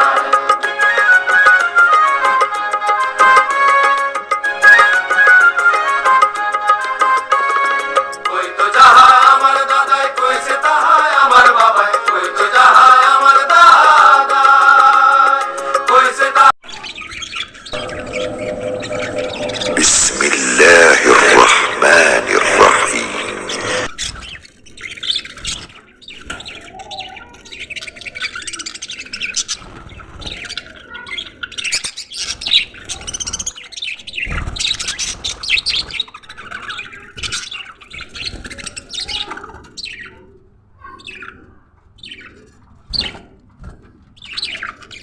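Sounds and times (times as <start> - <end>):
music: 0.0 - 23.9
budgerigars chirping and chattering: 16.6 - 43.3, 44.1 - 45.0.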